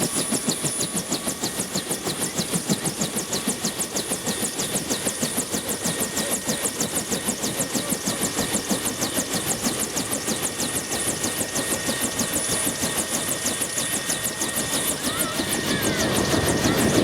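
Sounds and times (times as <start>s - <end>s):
helicopter rotor beat: 0.0s - 17.0s
turbine whine: 4.6s - 17.0s.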